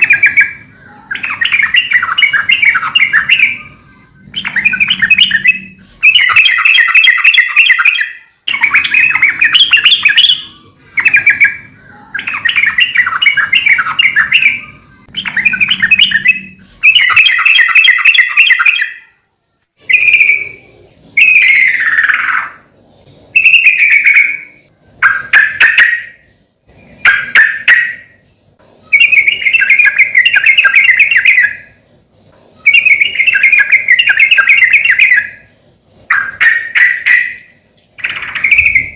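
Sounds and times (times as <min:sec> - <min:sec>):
bulbul singing bubbly phrases: 0:00.0 - 0:19.1.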